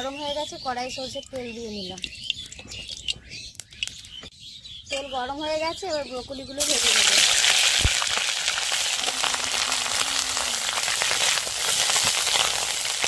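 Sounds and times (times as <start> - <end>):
vegetables sizzling in hot oil: 6.6 - 13.0.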